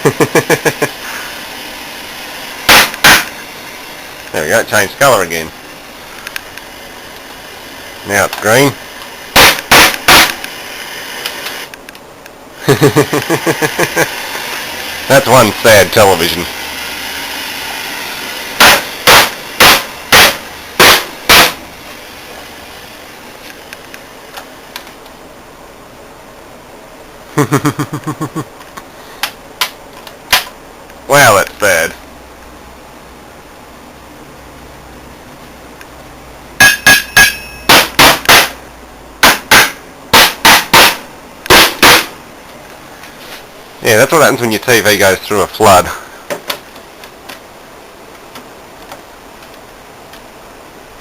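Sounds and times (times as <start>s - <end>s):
loud sharp cracks: 2.7s - 3.4s, 9.3s - 10.5s, 18.6s - 21.6s, 36.6s - 38.6s, 39.2s - 42.2s
television sharp cracks: 2.7s - 3.4s, 9.4s - 10.5s, 29.2s - 30.6s, 39.2s - 42.1s.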